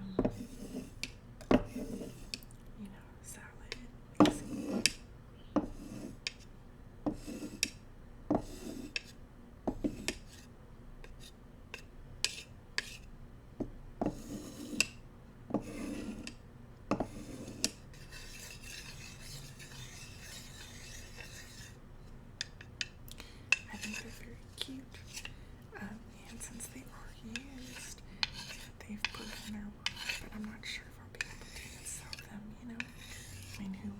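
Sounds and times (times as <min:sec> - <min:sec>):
bamboo utensils rasping: 0:17.2 - 0:21.8, 0:22.4 - 0:25.4, 0:27.3 - 0:30.6, 0:31.2 - 0:33.9
bamboo utensils tapping: 0:22.4 - 0:24.0.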